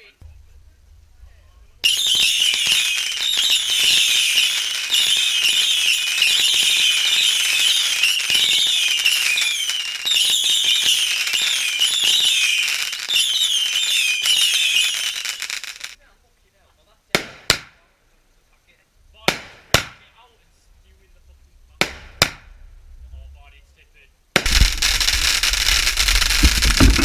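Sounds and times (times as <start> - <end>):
firework crackling: 0.0 - 16.0, 19.0 - 23.0, 24.3 - 27.0
high warbling firework whistles: 1.8 - 16.0, 24.4 - 27.0.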